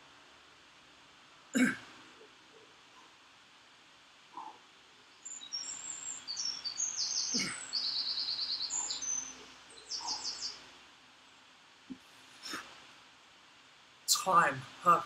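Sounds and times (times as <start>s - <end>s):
songbird chirps and trills: 2.1s - 11.9s.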